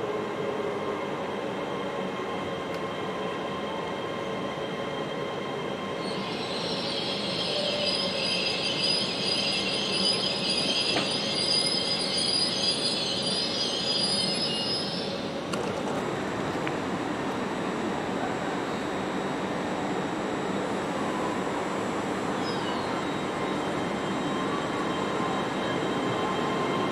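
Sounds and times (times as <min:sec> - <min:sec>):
high-pitched brake squeal: 0:05.8 - 0:15.3, 0:22.3 - 0:26.9.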